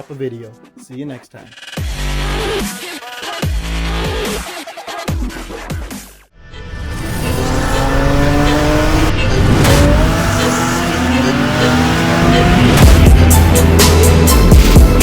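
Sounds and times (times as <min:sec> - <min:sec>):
car engine accelerating hard: 0:06.8 - 0:15.0.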